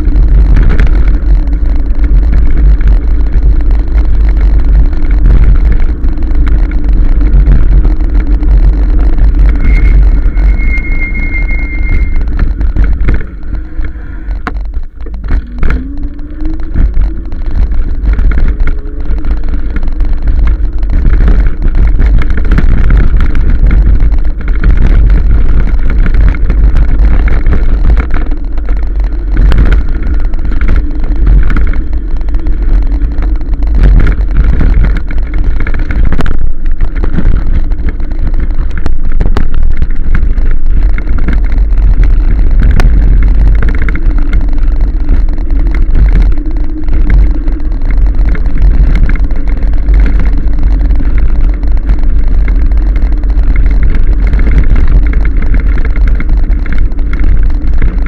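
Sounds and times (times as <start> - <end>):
electric motor whine: 0.0 - 39.5
road noise: 0.0 - 58.0
wind rumble on microphone: 0.0 - 58.0.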